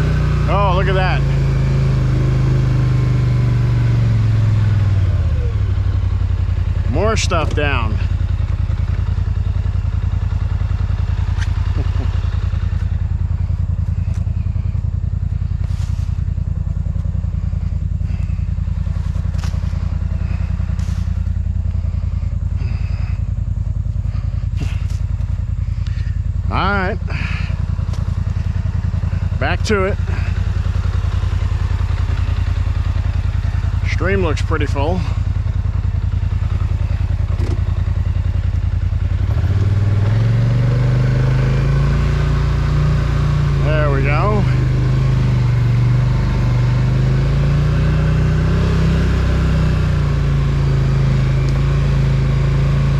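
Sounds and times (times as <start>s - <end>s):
atv engine running: 0.0s - 52.9s.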